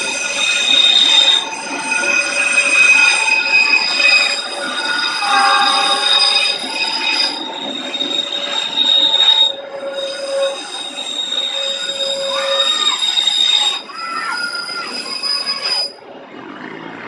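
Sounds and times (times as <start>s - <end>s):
high-pitched wheel squeal: 0.0s - 16.8s
train coaches rushing past: 0.0s - 17.0s
rising and falling tones: 0.3s - 12.4s.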